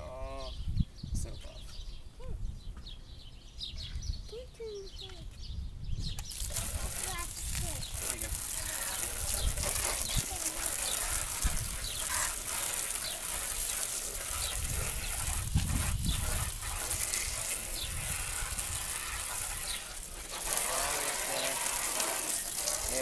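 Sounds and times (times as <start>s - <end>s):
water spraying from hose nozzle: 6.1s - 23.0s.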